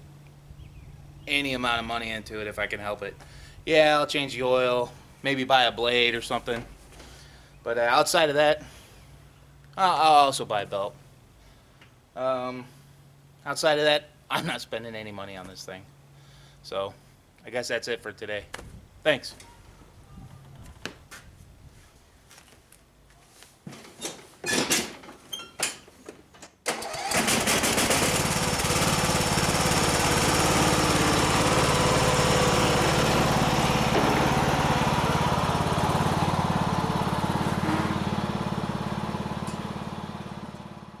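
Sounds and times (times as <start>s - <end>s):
lawn tractor engine running: 26.6s - 41.0s.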